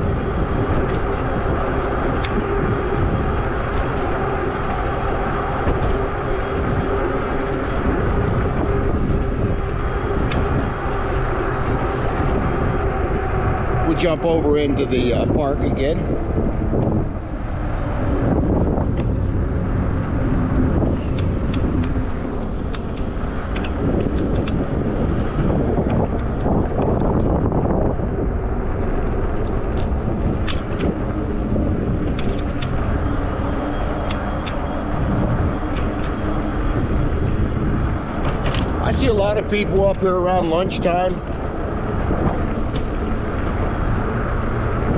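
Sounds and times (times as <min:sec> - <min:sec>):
wind noise: 0:00.0 - 0:44.9.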